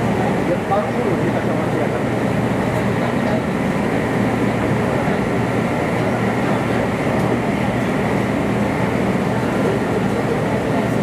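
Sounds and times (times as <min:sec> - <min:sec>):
train running roar: 0:00.0 - 0:11.0.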